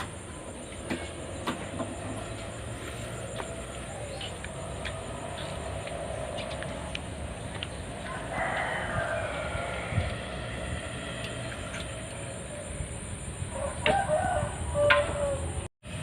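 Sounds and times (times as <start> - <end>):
outdoor background noise: 0.0 - 16.0
fowl-like bird call: 13.5 - 15.7.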